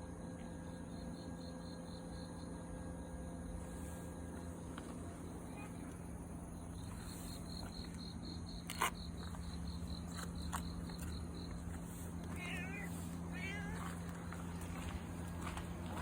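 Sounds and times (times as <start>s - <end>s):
cat meowing: 12.3s - 14.0s.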